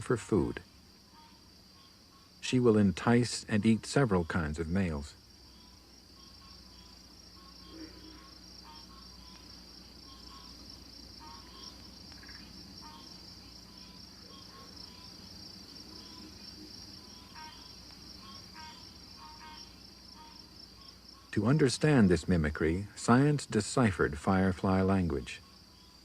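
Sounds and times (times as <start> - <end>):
high cricket trill: 0.0 - 26.0
short lower insect chirps: 0.6 - 2.5, 4.0 - 21.8.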